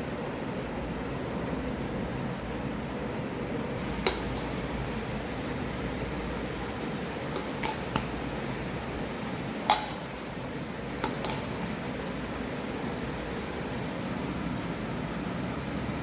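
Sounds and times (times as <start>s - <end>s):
fan hum: 0.0s - 16.0s
kitchen utensil clinks: 3.8s - 4.8s, 7.3s - 8.1s, 9.6s - 10.4s, 11.0s - 11.8s.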